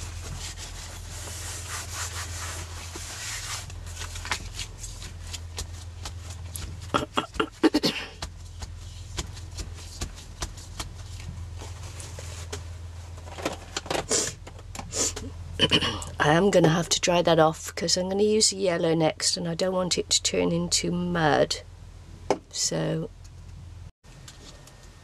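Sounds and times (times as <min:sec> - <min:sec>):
hands rubbing and scratching: 0:00.0 - 0:06.9, 0:08.2 - 0:12.6
steady low hum: 0:00.0 - 0:25.0.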